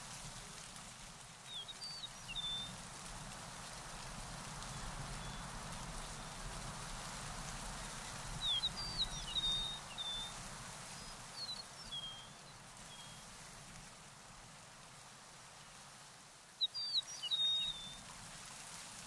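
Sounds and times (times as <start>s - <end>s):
outdoor background hiss: 0.0s - 19.0s
songbird chirping and whistling: 8.4s - 10.3s, 16.6s - 18.0s.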